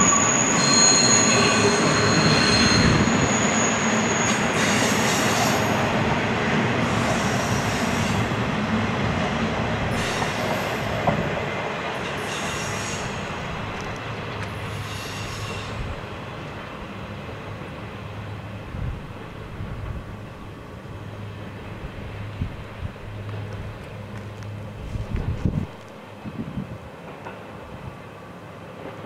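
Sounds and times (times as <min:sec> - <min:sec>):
high wheel squeal: 0:00.0 - 0:05.9, 0:06.8 - 0:08.4, 0:12.1 - 0:13.3, 0:14.6 - 0:15.9
train wheels rumbling on rail: 0:00.0 - 0:29.0.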